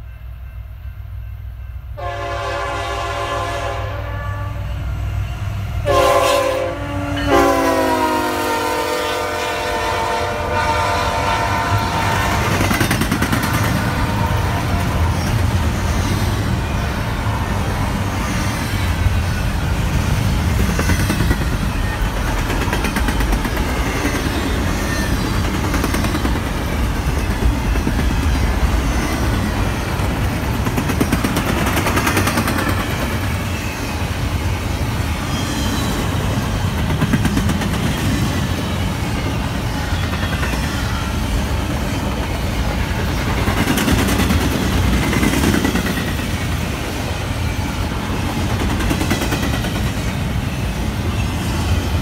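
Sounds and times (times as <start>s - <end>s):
diesel locomotive horn: 2.0s - 12.7s, 13.6s - 15.2s
wheels rumbling on rails: 7.3s - 52.0s.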